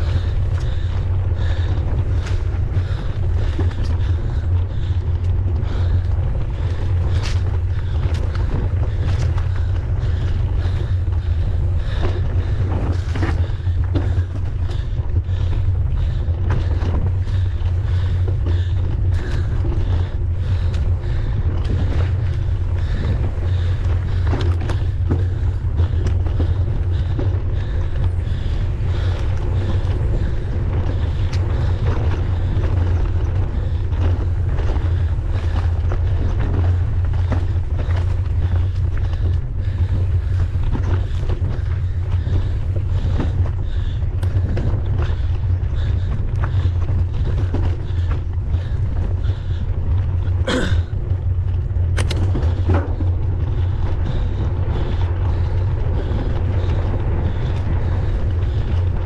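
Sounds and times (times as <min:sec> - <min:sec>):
bike clicks and rattles: 0:00.0 - 0:59.0
wind buffeting microphone: 0:00.0 - 0:59.0.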